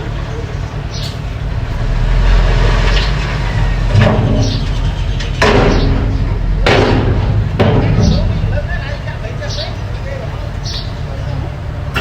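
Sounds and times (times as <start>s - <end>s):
bulldozer engine humming: 0.0s - 12.0s
loud knocks or scrapes: 1.6s - 9.1s.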